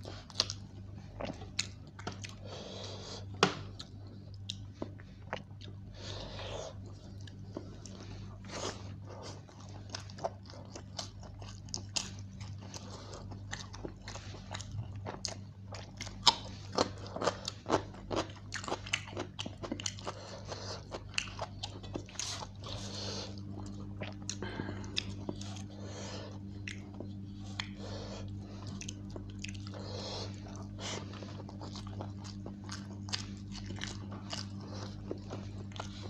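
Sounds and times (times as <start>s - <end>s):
person chewing with wet clicks: 0.0s - 2.4s, 3.2s - 6.0s, 6.7s - 36.0s
steady low hum: 0.0s - 36.0s.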